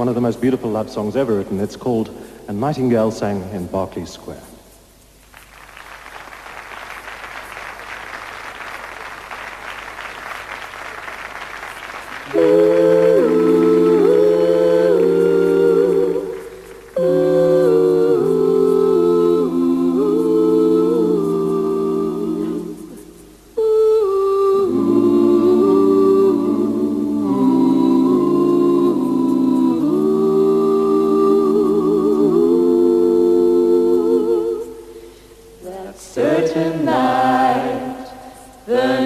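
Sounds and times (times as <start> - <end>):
a cappella group singing: 12.2 - 39.0.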